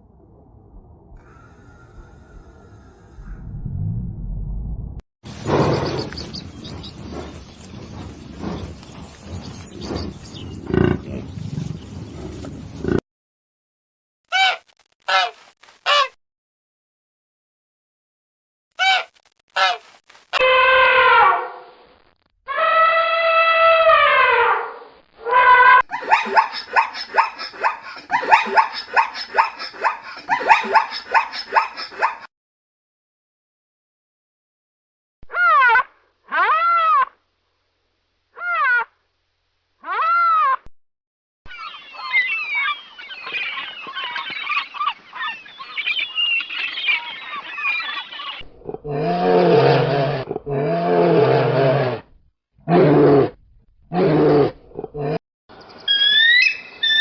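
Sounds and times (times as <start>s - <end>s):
large animal roaring: 48.5s - 55.2s.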